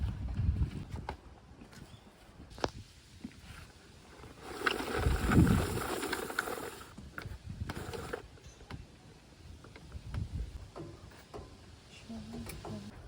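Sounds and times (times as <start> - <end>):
heavy bag being moved: 4.2 - 6.9.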